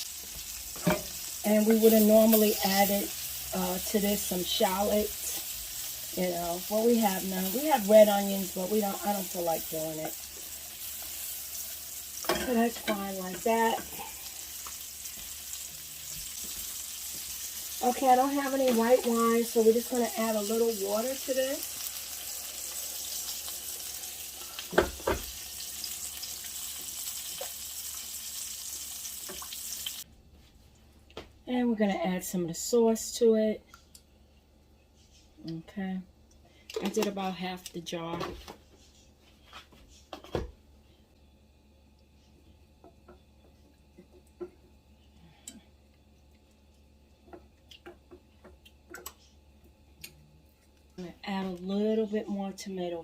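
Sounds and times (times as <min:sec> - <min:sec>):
low steady hum: 0:00.0 - 0:28.2, 0:29.4 - 0:53.0
food sizzling in a hot pan: 0:00.0 - 0:30.0.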